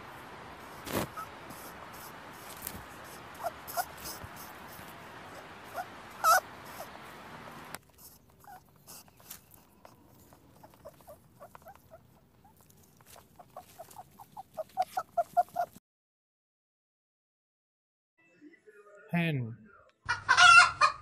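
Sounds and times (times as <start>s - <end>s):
rabbits squeaking: 0.6s - 15.8s.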